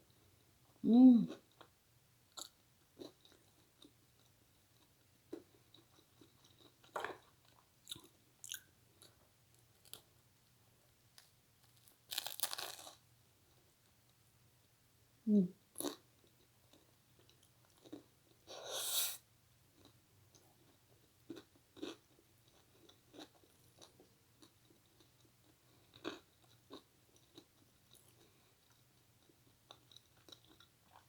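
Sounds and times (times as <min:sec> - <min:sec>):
crunchy bite: 0:12.1 - 0:13.0
chewing food: 0:19.8 - 0:31.0.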